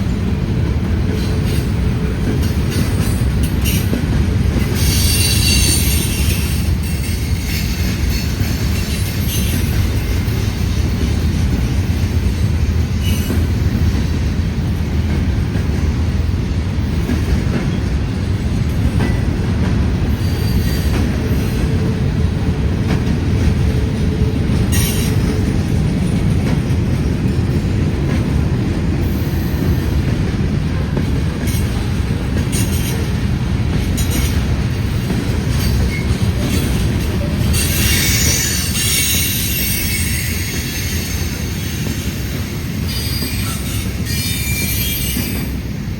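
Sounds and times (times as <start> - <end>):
freight train rumbling on rails: 0.0 - 45.9
high hissing wheel squeal: 4.8 - 9.7, 20.1 - 21.5, 37.4 - 45.6.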